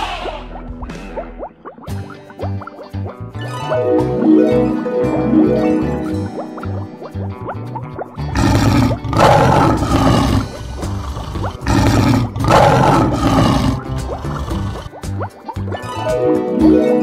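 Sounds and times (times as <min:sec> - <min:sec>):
background music: 0:00.0 - 0:17.0
lion roaring: 0:08.3 - 0:15.0.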